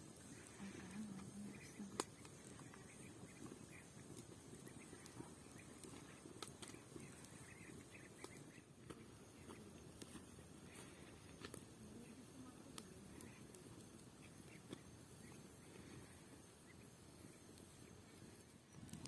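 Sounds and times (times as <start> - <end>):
small chirps: 0.1 - 19.0
chickens clucking: 0.2 - 11.1.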